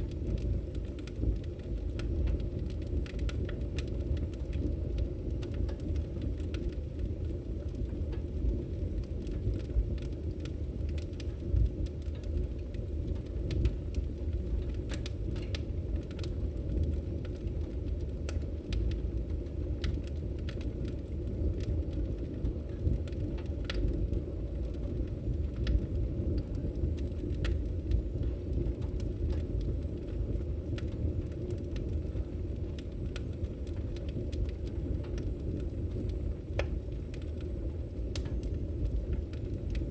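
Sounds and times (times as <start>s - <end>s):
fire popping and snapping: 0.0s - 39.9s
low rumble of flames: 0.0s - 39.9s.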